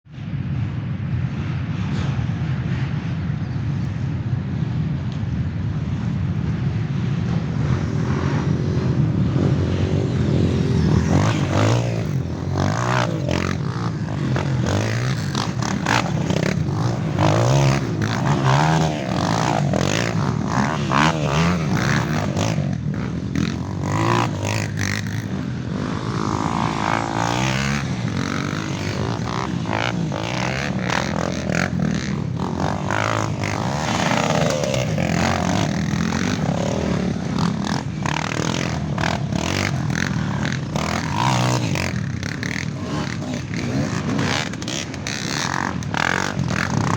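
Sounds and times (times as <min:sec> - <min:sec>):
dirt bikes revving: 0:06.0 - 0:46.9
sharp clicks and clatter: 0:11.2 - 0:46.9.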